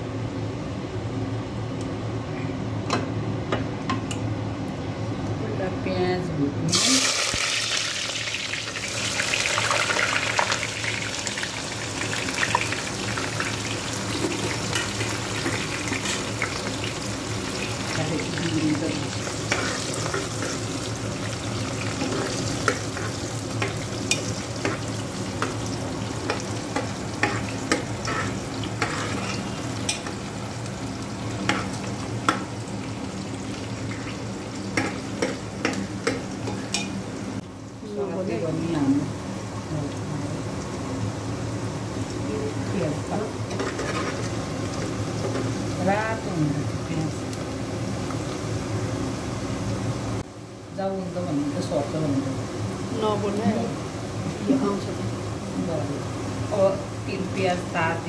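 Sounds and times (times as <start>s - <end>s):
food sizzling in hot oil: 6.7s - 58.0s
metal spatula scraping a pot: 27.2s - 29.5s, 43.5s - 44.3s.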